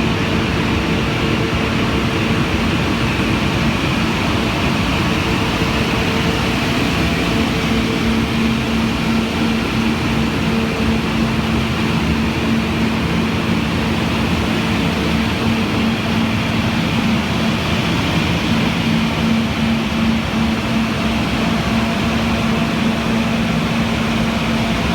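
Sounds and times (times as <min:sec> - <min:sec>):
blower rushing air with hum: 0:00.0 - 0:24.9.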